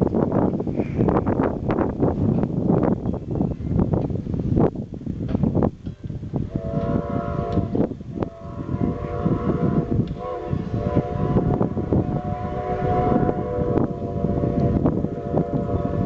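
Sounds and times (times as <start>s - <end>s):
running locomotive and train: 0.0s - 16.0s
steam locomotive whistle: 6.5s - 16.0s.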